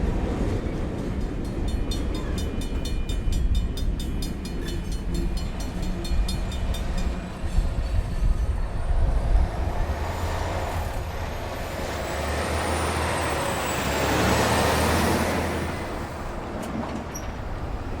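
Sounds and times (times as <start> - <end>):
heavy vehicle passing: 9.4 - 16.8.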